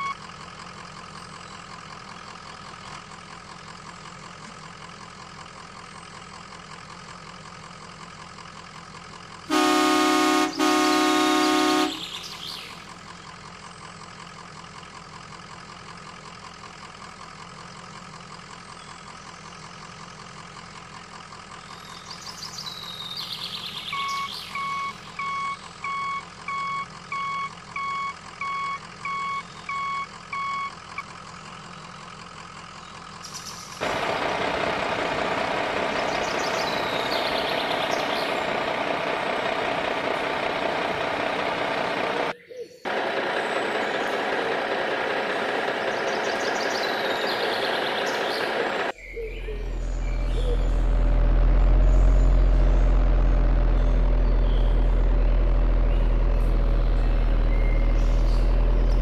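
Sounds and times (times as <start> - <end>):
rough loud engine: 0.0 - 25.8, 31.1 - 59.0
truck engine running: 0.0 - 59.0
reversing alarm beeping: 24.0 - 30.7.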